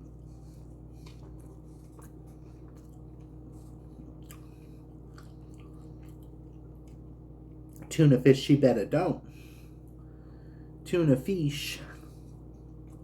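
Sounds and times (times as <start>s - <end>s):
chewing sandwich: 0.0s - 7.9s, 12.0s - 13.0s
steady low hum: 0.0s - 13.0s.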